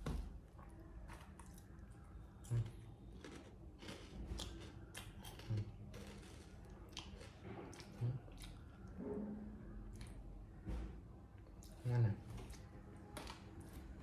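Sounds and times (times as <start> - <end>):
monkey crunching potato chips: 2.5 - 8.6.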